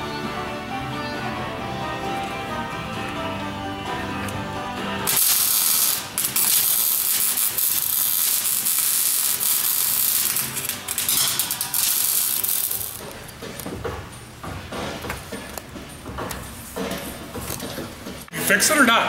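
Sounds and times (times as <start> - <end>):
background music: 0.0 - 19.0
power tool rattling and hissing: 5.1 - 13.4.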